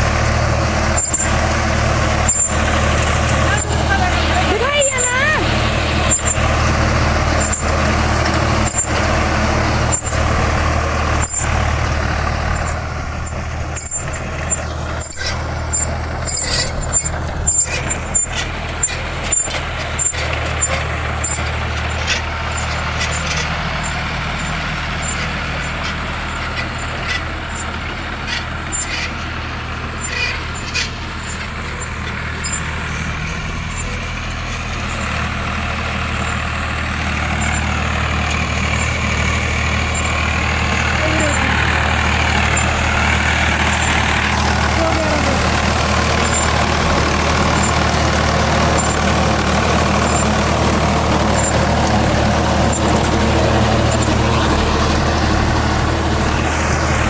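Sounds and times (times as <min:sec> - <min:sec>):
tractor diesel engine running: 0:00.0 - 0:57.0
sharp clicks and knocks: 0:07.4 - 0:29.3, 0:30.0 - 0:35.6.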